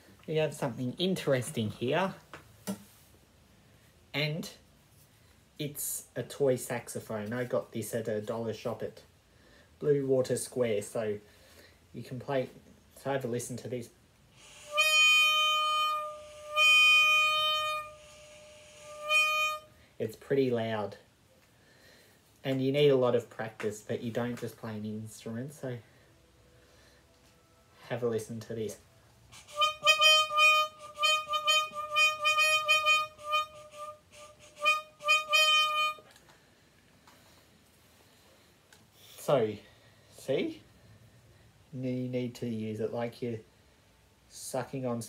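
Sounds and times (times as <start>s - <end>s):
toy saxophone blasts: 14.4s - 19.8s, 29.3s - 36.2s.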